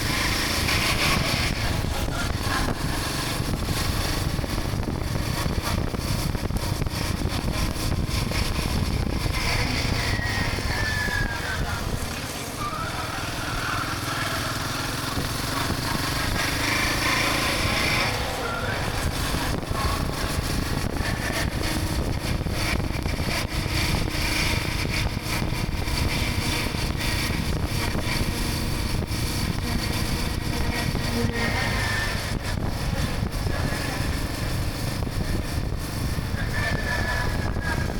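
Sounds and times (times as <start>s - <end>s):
motorcycle engine drone: 0.0s - 37.9s
wind rush on microphone: 0.0s - 37.9s.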